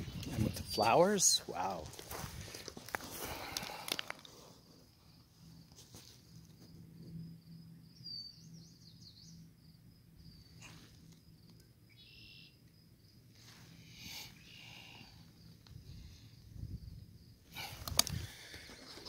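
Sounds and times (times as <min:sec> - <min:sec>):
faint bird chirps: 0:07.6 - 0:09.5, 0:10.2 - 0:12.7
rapid bird trill: 0:11.9 - 0:12.6.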